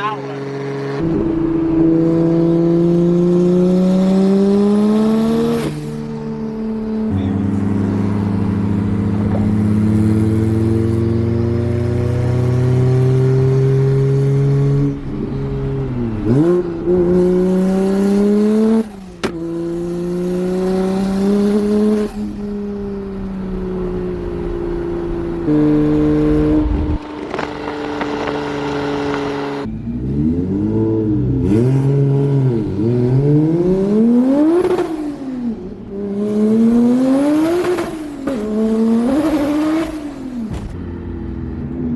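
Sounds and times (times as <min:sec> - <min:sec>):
car engine accelerating hard: 0:00.0 - 0:41.9
man talking: 0:07.1 - 0:07.5.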